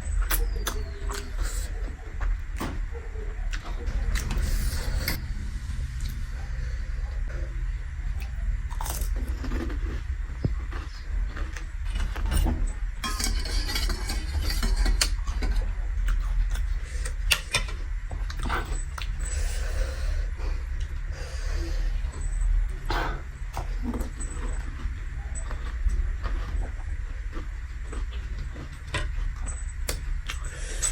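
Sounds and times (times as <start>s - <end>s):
chewing and crunching: 0.0s - 5.2s, 6.0s - 30.9s
steady low hum: 0.0s - 30.9s.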